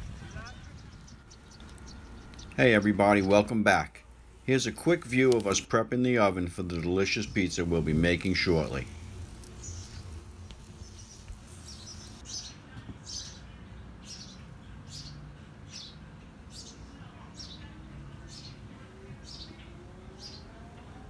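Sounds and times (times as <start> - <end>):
small bird chirping: 0.0 - 3.5, 9.2 - 16.0
low steady background hum: 0.0 - 21.0.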